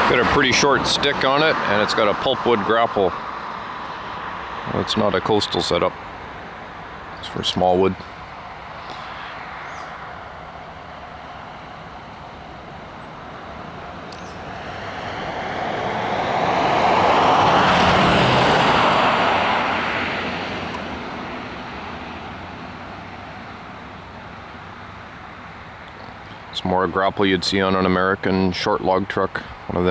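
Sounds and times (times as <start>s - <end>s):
vehicle driving past: 13.1s - 23.6s.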